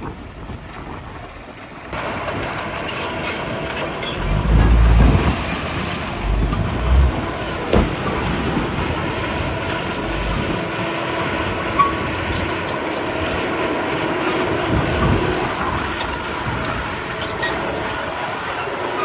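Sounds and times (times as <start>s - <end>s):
bulldozer engine running: 0.0s - 19.0s
metallic clicks and squeaks: 2.1s - 14.2s, 16.5s - 19.0s.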